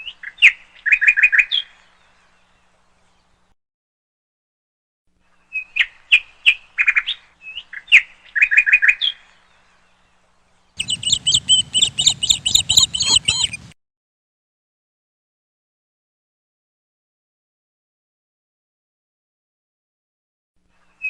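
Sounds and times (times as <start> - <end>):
low hum: 10.8 - 13.7
bird chirping and trilling: 10.8 - 13.8.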